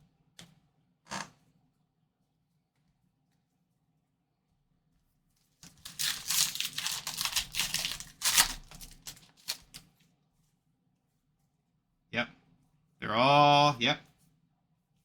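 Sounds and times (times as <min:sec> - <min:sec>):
foil wrapper crinkling and tearing: 0:05.6 - 0:10.0.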